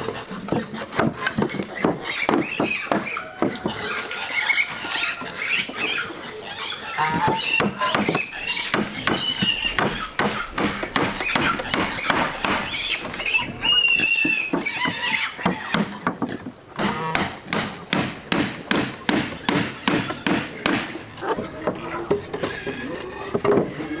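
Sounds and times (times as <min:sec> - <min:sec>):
high animal squeals: 0:00.0 - 0:15.7, 0:21.8 - 0:24.0
fast sharp knocks: 0:07.6 - 0:13.2, 0:16.8 - 0:20.9.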